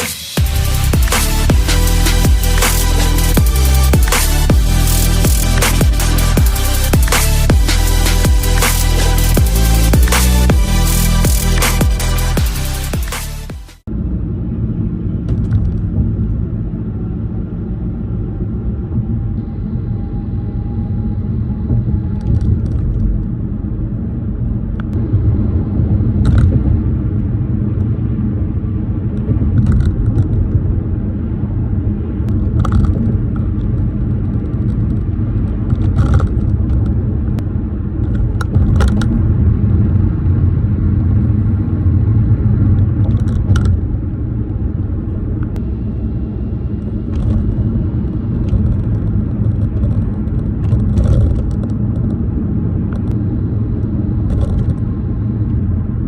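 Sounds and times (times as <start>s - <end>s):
plastic clicks and rattles in car: 22.2s - 23.2s, 29.5s - 30.6s, 32.3s - 37.0s, 38.0s - 39.2s, 43.0s - 44.0s, 47.1s - 47.7s, 48.4s - 52.2s, 54.2s - 54.9s
tyres rumbling over pavement: 32.0s - 55.4s.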